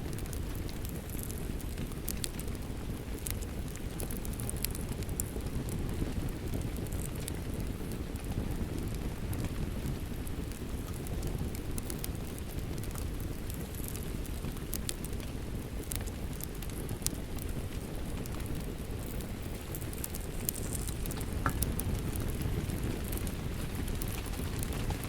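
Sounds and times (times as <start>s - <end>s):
steady rain: 0.0s - 25.0s
wood fire crackling: 0.0s - 25.0s.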